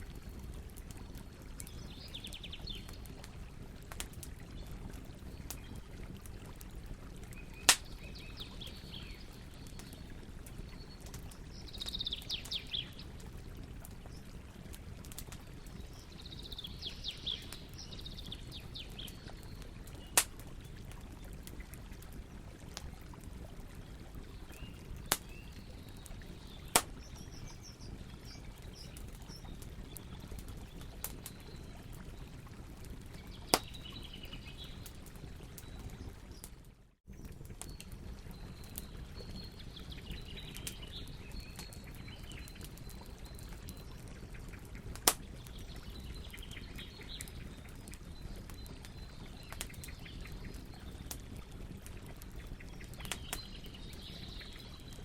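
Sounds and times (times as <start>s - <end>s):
campfire crackling: 0.0s - 55.0s
birds singing: 1.1s - 3.3s, 7.3s - 13.0s, 15.5s - 20.2s, 24.4s - 32.0s, 33.1s - 36.5s, 37.1s - 51.7s, 52.3s - 55.0s.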